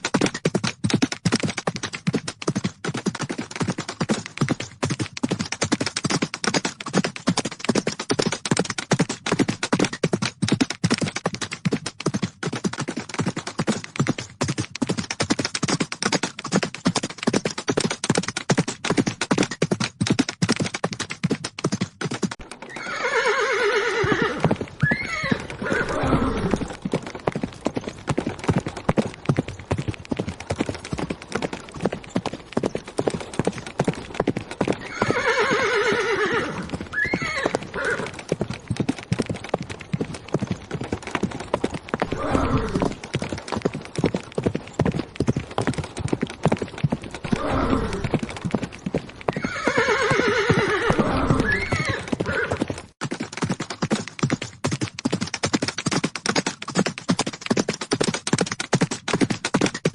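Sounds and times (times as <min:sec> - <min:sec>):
horses galloping: 0:00.0 - 0:59.9
horse whinnying: 0:22.6 - 0:26.8, 0:34.8 - 0:38.2, 0:42.0 - 0:43.0, 0:47.2 - 0:48.2, 0:49.3 - 0:52.7.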